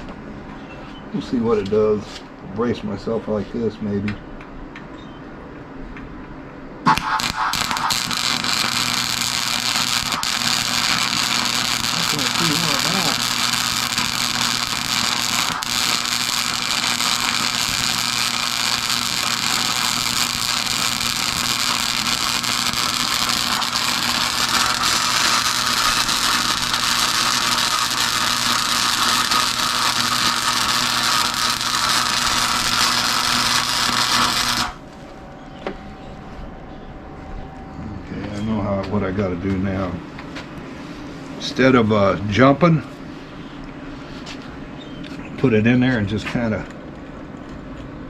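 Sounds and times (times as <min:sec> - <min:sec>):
low electrical hum: 0:00.0 - 0:48.0
welding arc sizzling crackle: 0:06.8 - 0:35.0.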